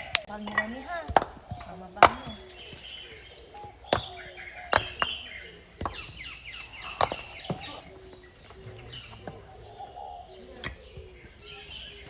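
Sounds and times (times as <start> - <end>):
bricks knocking together: 0.0 - 2.4, 3.9 - 5.2, 5.8 - 7.8
small birds chirping: 0.0 - 12.0.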